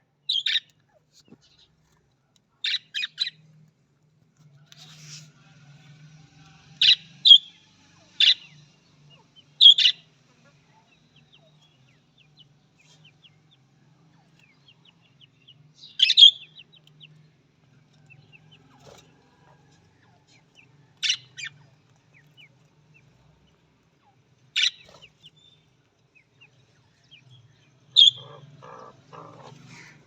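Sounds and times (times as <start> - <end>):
budgerigar chirps and squawks: 0.3 - 0.7, 2.6 - 3.4, 6.8 - 11.7, 15.8 - 16.7, 21.0 - 21.7, 24.0 - 25.5, 27.9 - 30.0.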